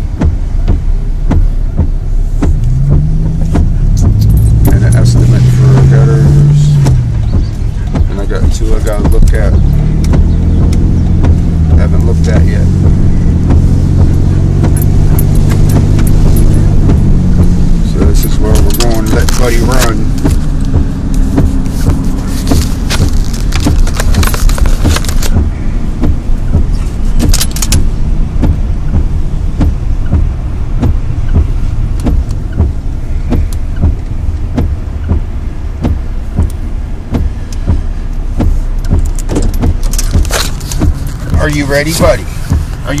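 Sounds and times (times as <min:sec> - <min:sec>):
loose things rattling in cab: 0:00.0 - 0:43.0
truck engine and road rumble: 0:00.0 - 0:43.0.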